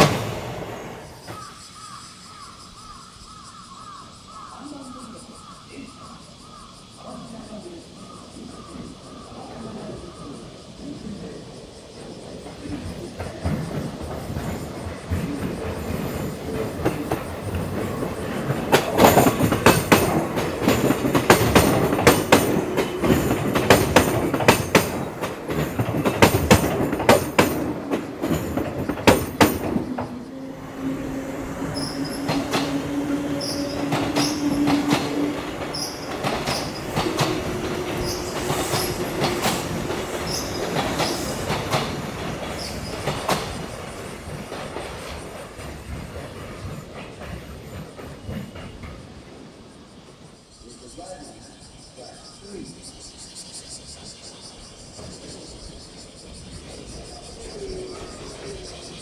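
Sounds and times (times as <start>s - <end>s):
train wheels clattering: 0.0s - 1.9s, 12.1s - 49.8s
train wheel squeal: 12.4s - 49.8s.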